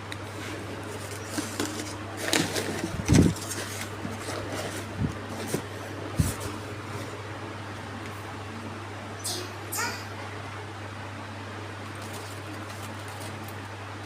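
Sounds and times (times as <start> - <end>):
objects rustling and knocking: 0.2 - 7.2.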